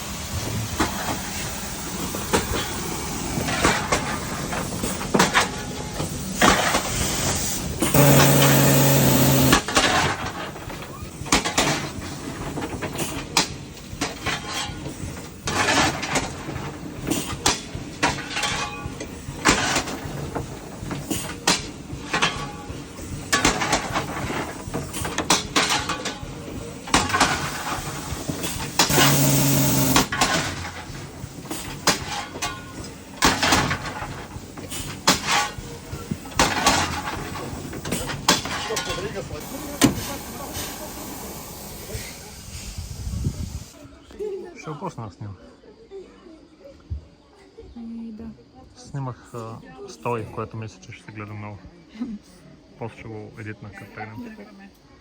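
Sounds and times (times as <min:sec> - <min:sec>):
railway carriage clattering: 0:00.0 - 0:43.8.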